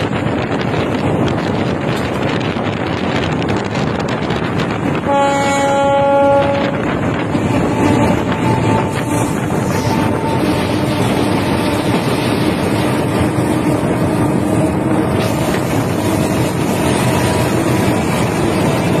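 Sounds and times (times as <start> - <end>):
diesel locomotive engine rumble: 0.0 - 19.0
train wheels on rails: 0.0 - 19.0.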